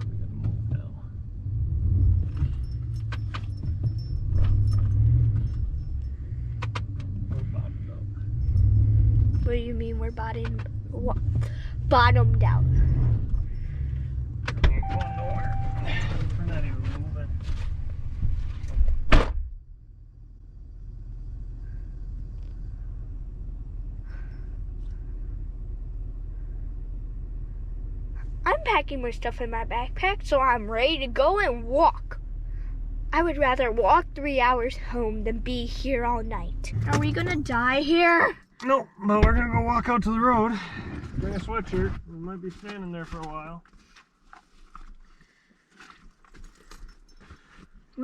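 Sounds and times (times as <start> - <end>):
truck engine revving: 0.0 - 17.2, 33.1 - 38.3
truck engine rumbling: 0.0 - 45.5
clicks and rattles in cab: 2.3 - 7.5.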